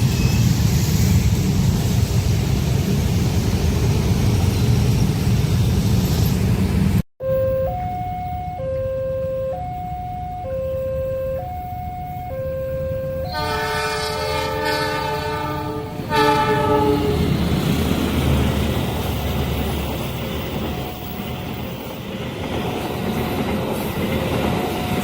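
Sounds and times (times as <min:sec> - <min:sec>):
train rumbling over crossing: 0:00.0 - 0:07.0, 0:07.6 - 0:25.0
two-tone level crossing alarm: 0:07.2 - 0:14.6
train horn blast: 0:13.2 - 0:17.3.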